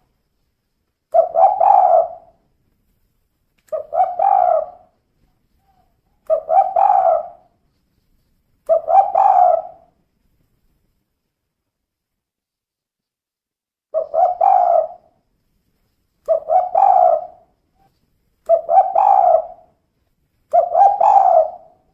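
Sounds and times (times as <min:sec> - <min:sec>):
dove cooing: 0:01.1 - 0:02.4, 0:03.7 - 0:05.0, 0:05.6 - 0:07.5, 0:08.7 - 0:09.9, 0:14.0 - 0:15.2, 0:16.2 - 0:17.5, 0:18.5 - 0:19.7, 0:20.5 - 0:21.9.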